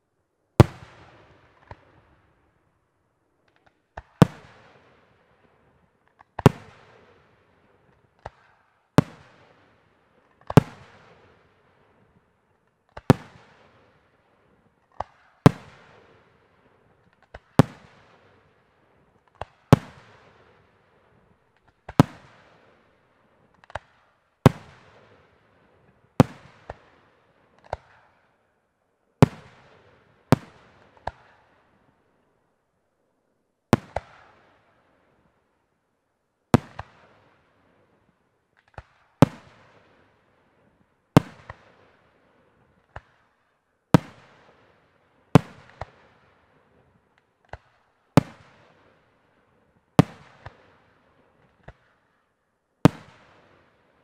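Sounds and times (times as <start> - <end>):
small firework pops: 0.6 - 2.2, 3.4 - 4.6, 5.4 - 7.1, 7.9 - 9.5, 10.2 - 11.3, 12.0 - 13.8, 14.8 - 16.0, 16.9 - 18.3, 19.1 - 20.4, 21.5 - 22.6, 23.4 - 25.3, 25.9 - 28.4, 29.2 - 31.6, 33.7 - 35.4, 36.5 - 37.3, 37.9 - 40.0, 41.1 - 42.0, 42.6 - 44.7, 45.3 - 46.2, 47.1 - 49.0, 50.0 - 50.8, 51.4 - 53.7.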